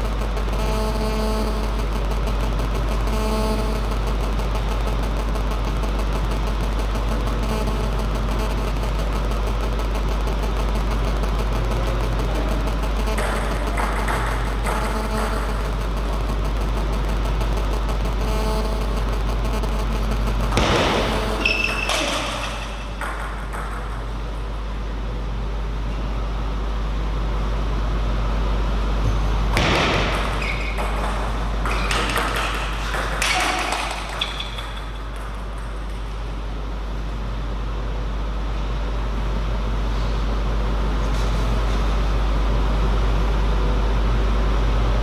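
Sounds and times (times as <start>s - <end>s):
low electrical hum: 0.0s - 45.0s
table tennis ball clicking: 30.8s - 36.2s.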